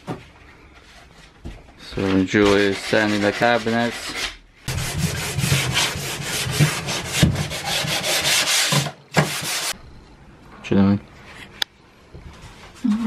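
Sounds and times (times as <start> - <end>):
sandpaper rubbing on wood: 2.4 - 9.8.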